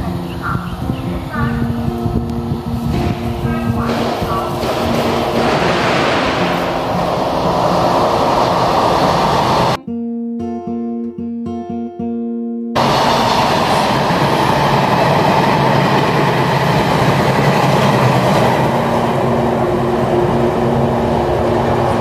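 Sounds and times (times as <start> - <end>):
plucked guitar notes: 0.0 - 9.0, 9.8 - 12.8
passenger train rushing past: 0.0 - 9.8, 12.8 - 22.0.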